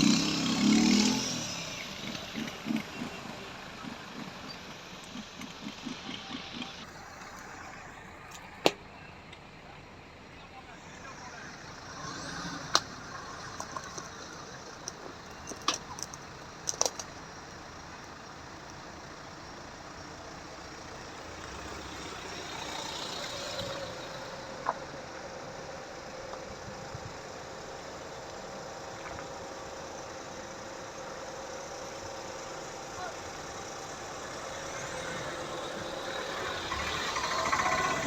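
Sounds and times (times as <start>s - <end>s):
vehicle engine running: 0.0s - 38.0s.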